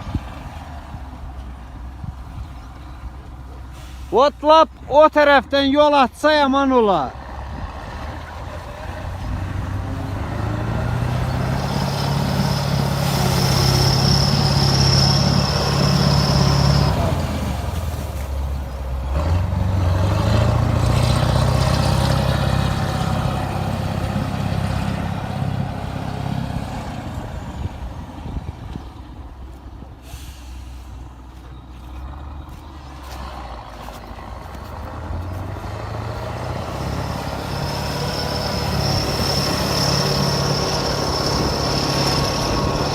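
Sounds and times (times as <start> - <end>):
tractor diesel engine under load: 0.0 - 42.9
steady high whistle: 12.5 - 17.1.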